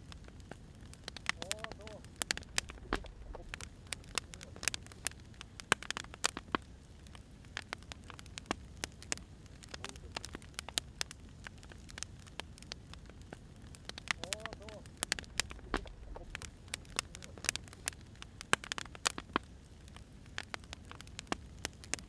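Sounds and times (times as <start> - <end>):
wood fire crackling: 0.0 - 22.0
low rumble: 2.2 - 4.8, 15.1 - 17.1.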